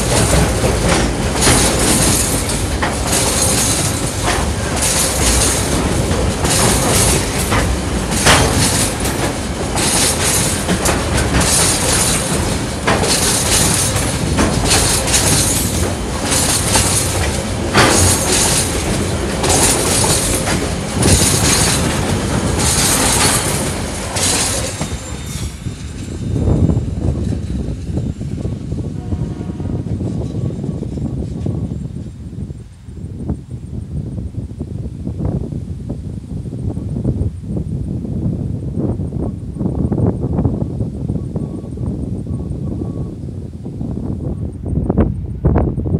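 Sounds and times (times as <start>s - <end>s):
steel wheels clacking over rail joints: 0.0s - 32.2s
freight train rolling past: 0.0s - 45.9s.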